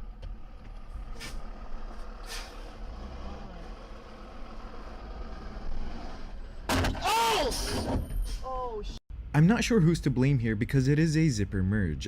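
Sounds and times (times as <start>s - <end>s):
vehicle road and engine noise: 0.0s - 7.0s.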